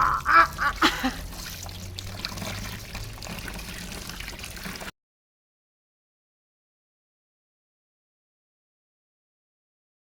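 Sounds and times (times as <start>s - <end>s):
water pouring and trickling: 0.0s - 4.9s.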